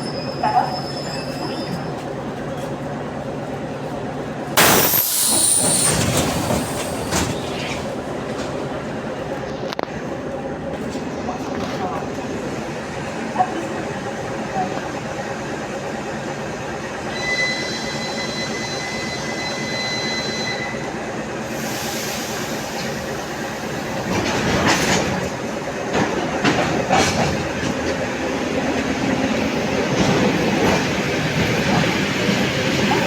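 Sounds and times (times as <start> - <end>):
train wheels squealing: 0.0 - 2.1, 4.6 - 7.9, 17.1 - 23.7
train wheels clacking over rail joints: 4.6 - 8.7, 24.0 - 28.2.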